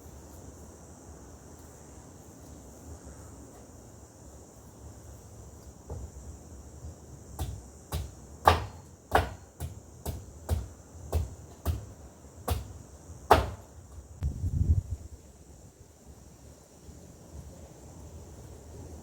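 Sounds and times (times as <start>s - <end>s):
insects chirring: 0.0s - 19.0s
sharp chopping strikes: 7.4s - 11.9s, 12.5s - 13.6s.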